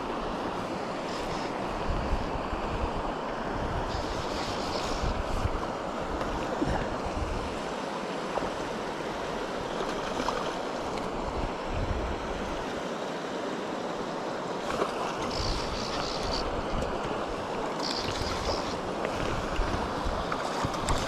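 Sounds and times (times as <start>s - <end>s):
stream rushing over rocks: 0.0s - 21.0s
wind buffeting microphone: 1.2s - 7.6s.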